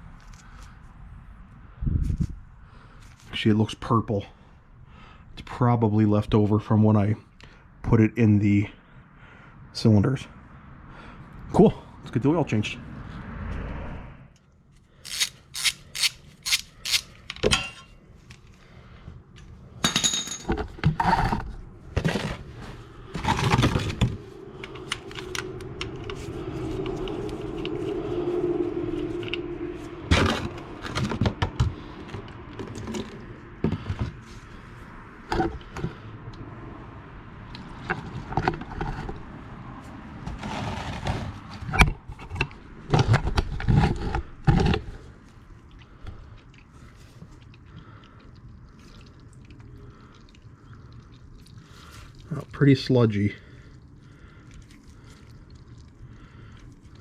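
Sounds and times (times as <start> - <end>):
metal hand tools clinking and scraping: 15.0 - 18.0.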